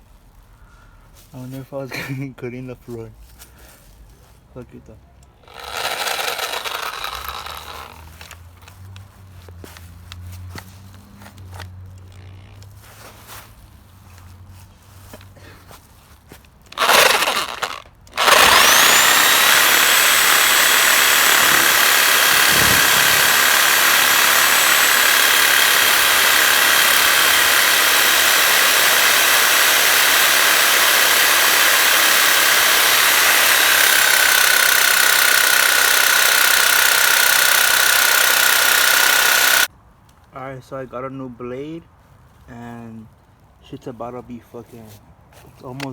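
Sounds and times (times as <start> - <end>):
electric power saw cutting: 5.5 - 8.1, 16.8 - 39.7.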